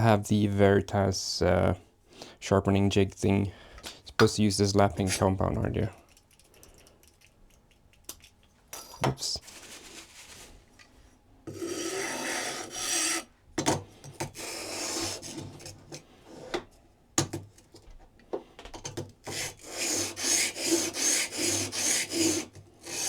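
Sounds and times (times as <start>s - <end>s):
blade scraping on sharpening plate: 11.5s - 13.3s, 14.2s - 15.7s, 19.3s - 23.0s.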